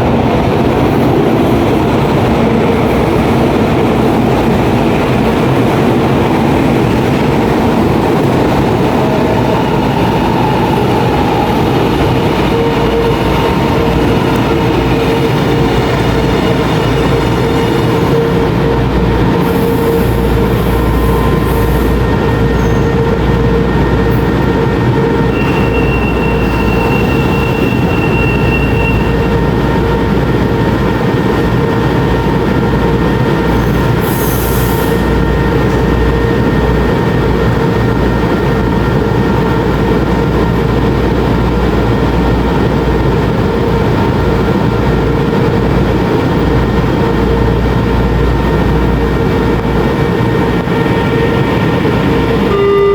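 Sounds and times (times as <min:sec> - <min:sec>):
metro train rumbling: 0:00.0 - 0:52.9
high squeal: 0:09.4 - 0:24.0, 0:24.9 - 0:30.0.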